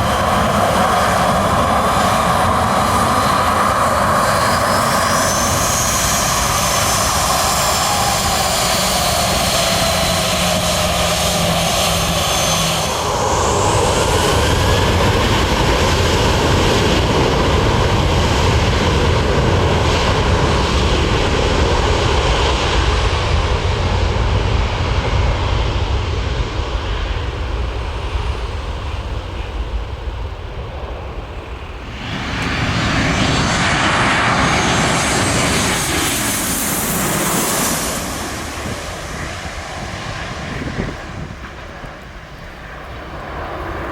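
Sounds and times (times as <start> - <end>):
high whining engine tones: 0.0 - 21.6, 31.3 - 43.9
airliner engines running loud: 0.0 - 43.9.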